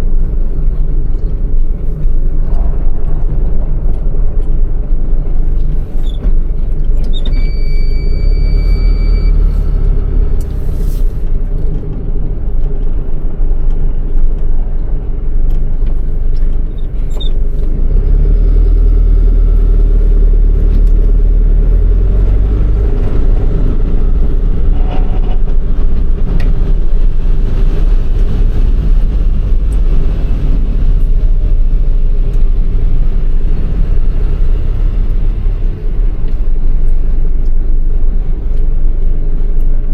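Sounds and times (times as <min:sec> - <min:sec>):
truck diesel engine rumbling: 0:00.0 - 0:39.9
steady beep: 0:07.2 - 0:09.8.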